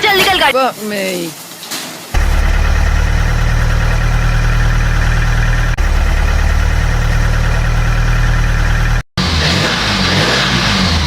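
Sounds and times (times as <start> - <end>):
vehicle engine running: 2.2 - 11.0.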